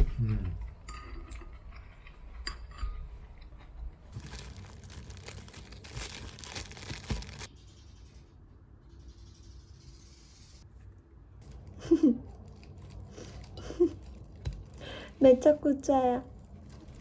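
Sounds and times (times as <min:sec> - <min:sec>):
crinkling rustle: 0:04.0 - 0:07.5, 0:11.4 - 0:17.0.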